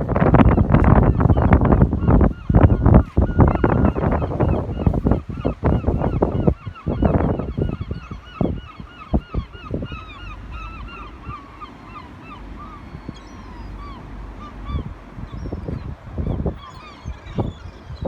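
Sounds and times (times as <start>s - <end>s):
low thumps and rumbles: 0.0s - 11.3s
gulls calling: 0.0s - 18.0s.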